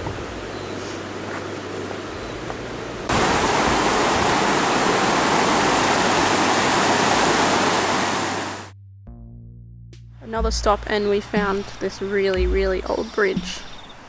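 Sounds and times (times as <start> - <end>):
fast-flowing water rushing: 3.1 - 8.7.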